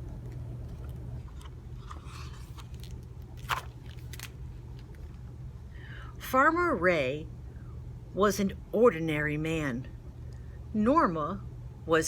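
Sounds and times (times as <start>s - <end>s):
steady low hum: 0.0s - 12.0s
paper crinkles: 0.3s - 5.2s
paper pages rustling: 0.3s - 5.2s.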